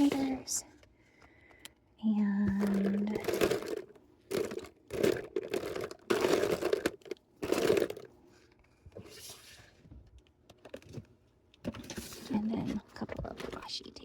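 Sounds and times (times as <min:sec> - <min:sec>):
plastic packaging crinkling: 0:02.5 - 0:08.1.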